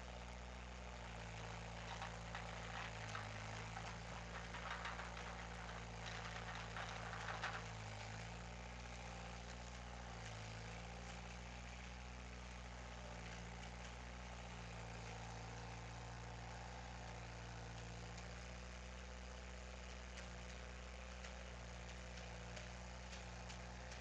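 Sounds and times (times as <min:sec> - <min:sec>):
engine idling: 0:00.9 - 0:18.9.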